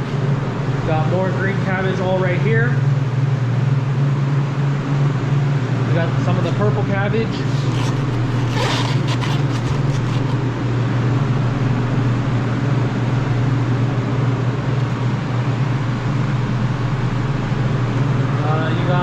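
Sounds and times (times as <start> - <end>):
refrigeration unit humming: 0.0 - 19.0
fan noise rushing: 4.7 - 11.6.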